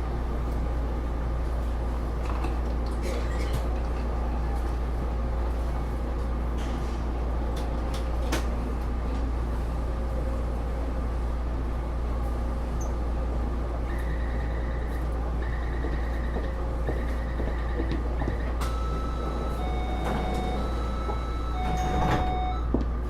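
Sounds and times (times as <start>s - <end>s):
metro car rumble: 0.0s - 23.0s
high beeping tone: 18.7s - 22.7s.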